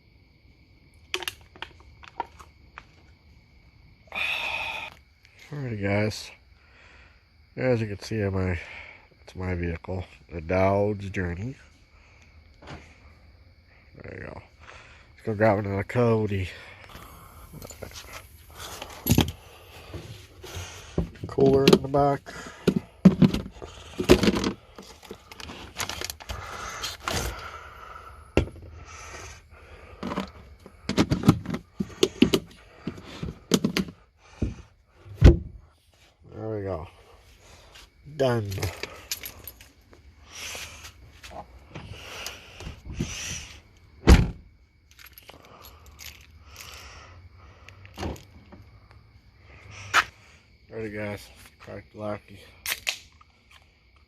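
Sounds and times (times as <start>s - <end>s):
rummaging in a cooler: 17.0s - 27.4s, 29.9s - 34.6s
sharp knocks and clunks: 20.9s - 24.6s, 30.0s - 35.6s
heavy thump: 34.4s - 35.6s.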